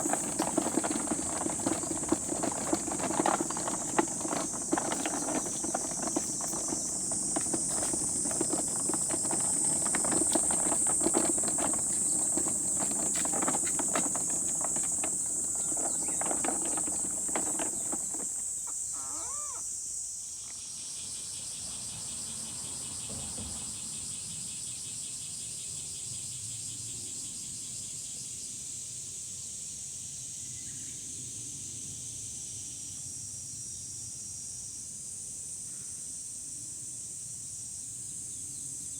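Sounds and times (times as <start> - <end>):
knocking and rustling of handling: 0.0 - 19.5
insects droning: 0.0 - 23.0.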